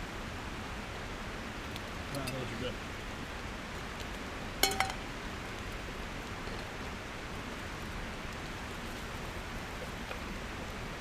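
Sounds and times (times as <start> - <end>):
metallic clink of cookware: 4.6 - 5.0.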